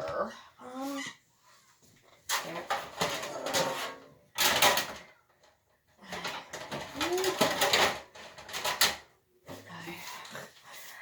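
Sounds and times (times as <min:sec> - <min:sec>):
metal pots and pans clattering: 0:02.3 - 0:05.2, 0:06.0 - 0:09.1.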